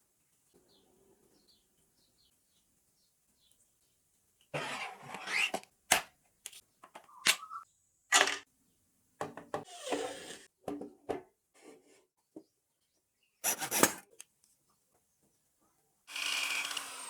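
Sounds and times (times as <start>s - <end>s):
scraping and rubbing: 4.6s - 5.6s.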